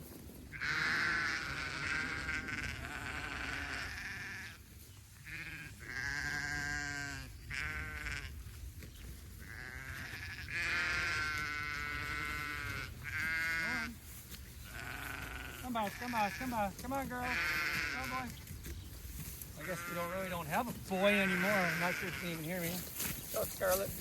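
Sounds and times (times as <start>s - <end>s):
sheep bleating: 0.5s - 4.6s, 5.2s - 8.4s, 9.4s - 14.0s, 14.6s - 18.3s, 19.6s - 22.8s.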